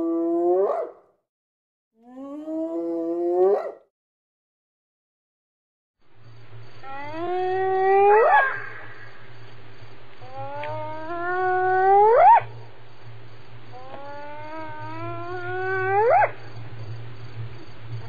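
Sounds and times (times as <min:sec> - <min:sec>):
hyena whooping: 0:06.8 - 0:09.2, 0:10.2 - 0:12.5, 0:13.8 - 0:16.4.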